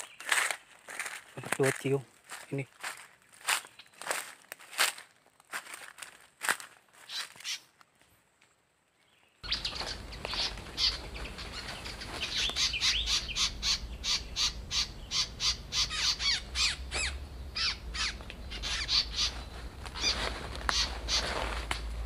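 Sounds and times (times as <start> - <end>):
birds chattering calls: 9.1 - 22.0.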